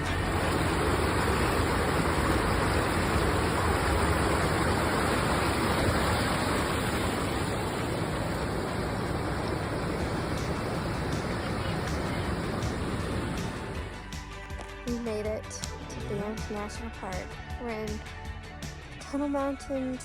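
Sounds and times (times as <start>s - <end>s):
steady rushing noise: 0.0s - 14.1s.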